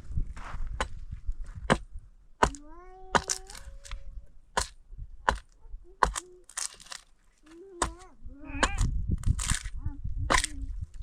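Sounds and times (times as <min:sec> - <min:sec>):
sharp cracking knocks: 0:01.7 - 0:02.6, 0:03.2 - 0:03.6.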